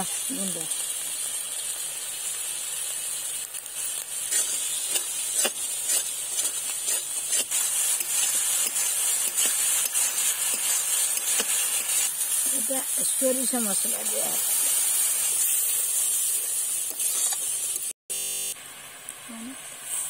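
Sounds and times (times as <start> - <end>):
paste sizzling in hot oil: 0.0 - 18.0, 18.6 - 20.0
metal spatula scraping pan: 4.3 - 12.0, 16.9 - 17.4.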